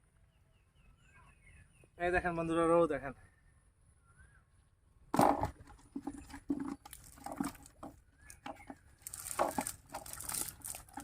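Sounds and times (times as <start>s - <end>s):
fish slapping in a net: 6.3s - 11.0s.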